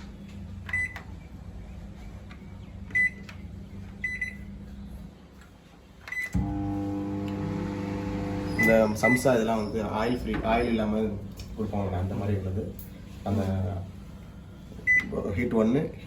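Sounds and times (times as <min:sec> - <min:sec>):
microwave keypad beeping: 0:00.7 - 0:01.0, 0:02.9 - 0:03.2, 0:04.0 - 0:04.4, 0:07.8 - 0:09.4
microwave oven humming: 0:06.1 - 0:10.2.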